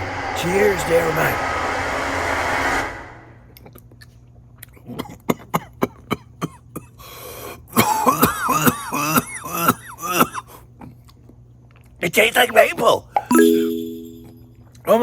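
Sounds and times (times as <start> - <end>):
steady rushing noise: 0.0 - 3.5
man coughing: 7.8 - 10.5.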